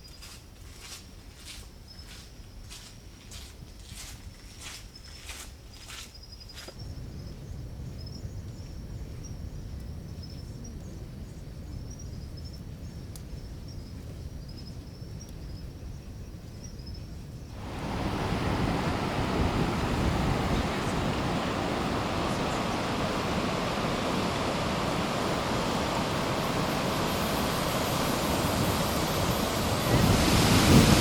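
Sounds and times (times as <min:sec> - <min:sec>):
loud rush of falling water: 0:17.6 - 0:31.0
waterfall rumbling: 0:17.6 - 0:31.0.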